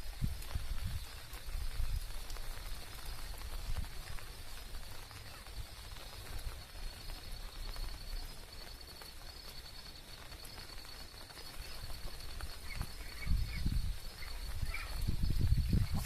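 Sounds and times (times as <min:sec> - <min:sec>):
wind rumble on microphone: 0:00.0 - 0:08.3, 0:11.5 - 0:16.0
light rain pattering: 0:00.0 - 0:16.0.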